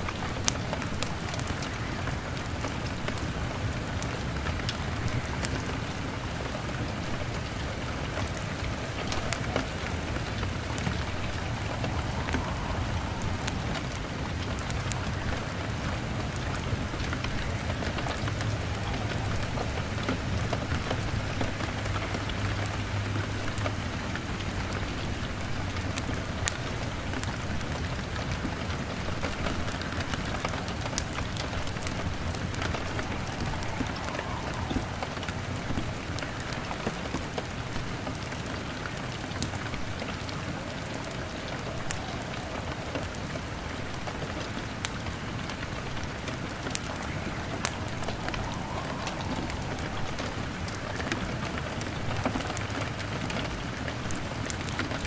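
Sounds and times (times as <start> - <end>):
log fire crackling: 0.0 - 55.0
rain pattering on a window: 0.0 - 55.0
low rumble: 8.7 - 20.5, 31.1 - 36.7, 46.9 - 52.3.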